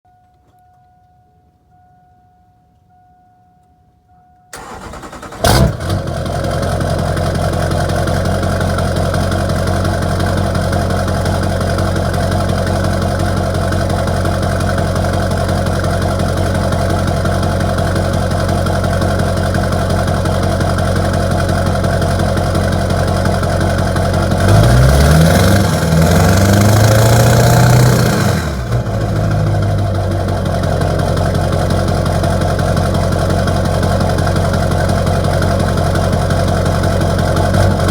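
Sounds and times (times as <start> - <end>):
diesel engine cranking: 4.5 - 37.9
engine revving: 4.6 - 12.8, 22.3 - 33.0, 35.8 - 37.9
diesel engine idling: 4.6 - 37.9.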